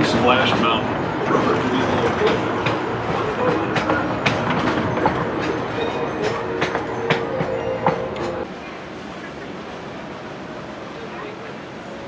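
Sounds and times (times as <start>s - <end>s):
train wheels clickety-clack: 0.0s - 8.5s
train rolling rumble: 0.0s - 12.0s.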